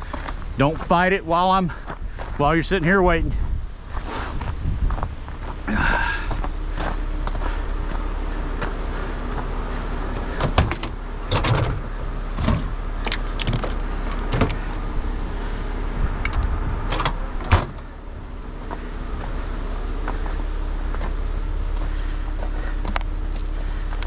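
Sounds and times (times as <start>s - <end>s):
heavy truck engine idling: 0.0s - 24.0s
metal clanks and knocks: 10.2s - 14.8s, 16.3s - 17.9s.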